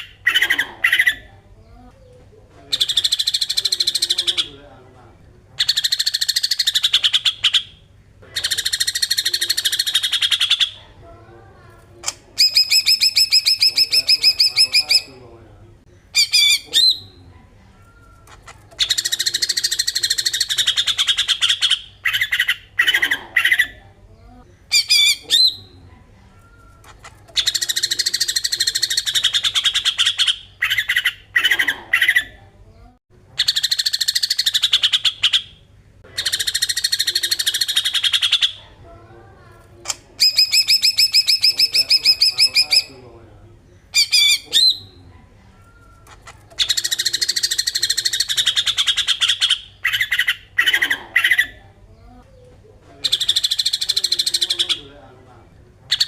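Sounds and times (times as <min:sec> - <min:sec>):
faint low hum: 0:00.0 - 0:29.7
bird rattling chattering call: 0:12.4 - 0:15.1, 0:36.2 - 0:38.6, 0:40.2 - 0:42.9, 0:46.2 - 0:51.5.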